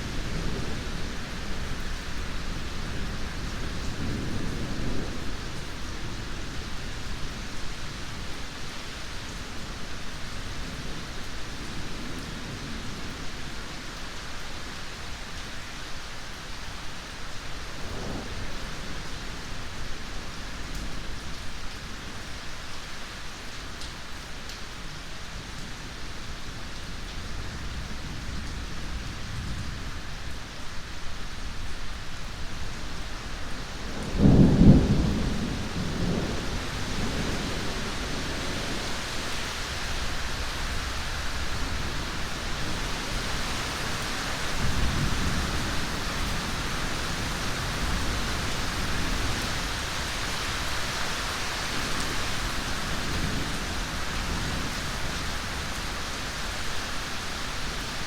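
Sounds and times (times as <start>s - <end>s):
heavy rain hissing: 0.0s - 58.0s
thunder rumbling: 33.8s - 39.3s.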